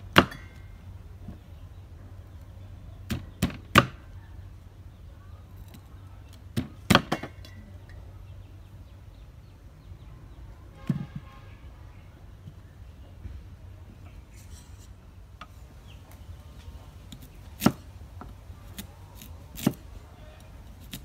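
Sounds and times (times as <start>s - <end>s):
cleaver chopping corn on wooden board: 3.1s - 4.0s, 17.1s - 17.9s, 18.7s - 19.9s.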